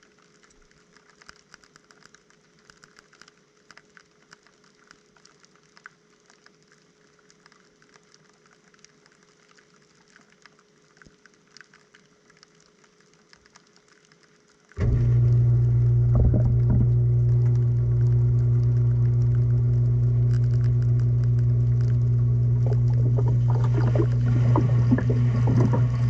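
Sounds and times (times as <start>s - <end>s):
faint irregular ticks and clicks: 0.0s - 26.0s
thin steady hum: 14.8s - 26.0s.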